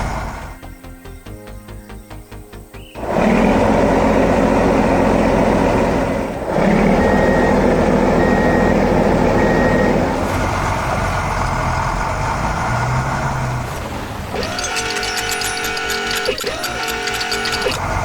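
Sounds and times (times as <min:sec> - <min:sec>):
truck engine running: 0:02.3 - 0:18.0
reversing alarm beeping: 0:06.7 - 0:10.1, 0:14.4 - 0:17.8.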